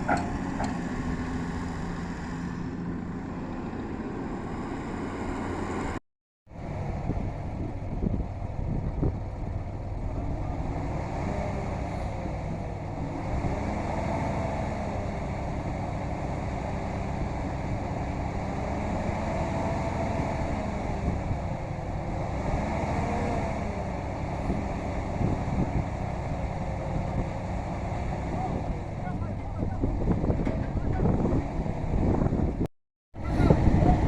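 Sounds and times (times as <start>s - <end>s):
engine running: 0.0s - 6.0s.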